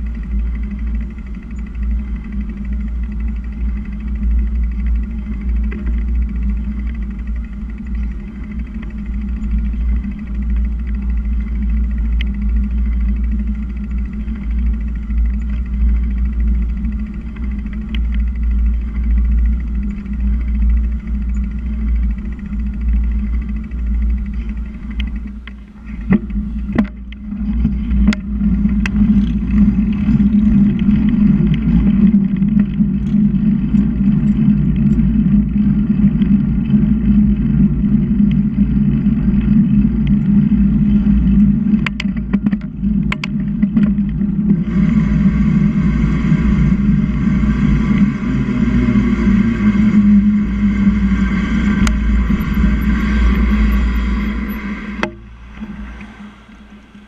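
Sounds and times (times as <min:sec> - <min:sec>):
wind and road noise rumble: 0:00.0 - 0:57.0
whining high hiss: 0:44.9 - 0:57.0.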